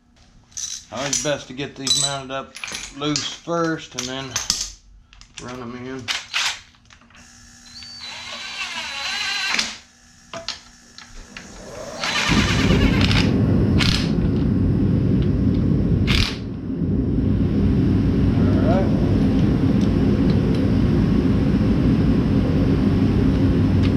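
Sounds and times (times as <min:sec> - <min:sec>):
power tool whirring: 0:07.2 - 0:13.9.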